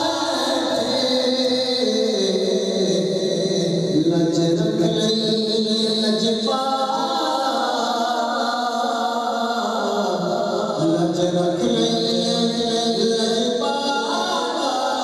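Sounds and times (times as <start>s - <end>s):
voices chanting unaccompanied: 0.0s - 3.3s, 6.5s - 10.8s, 11.6s - 15.0s.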